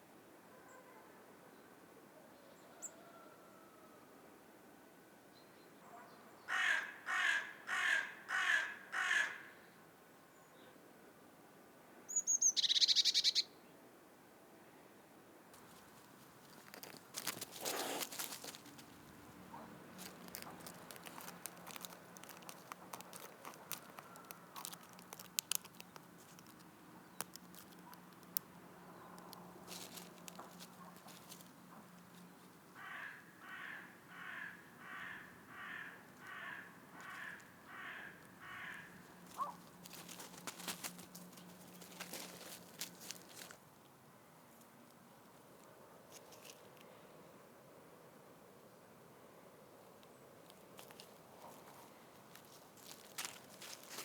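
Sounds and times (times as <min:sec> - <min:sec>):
crow cawing: 0:06.5 - 0:09.6, 0:32.8 - 0:39.6
faint ticks and rustling: 0:15.5 - 0:32.8, 0:36.1 - 0:47.2, 0:49.8 - 0:54.0
scraping clicks: 0:19.9 - 0:28.5.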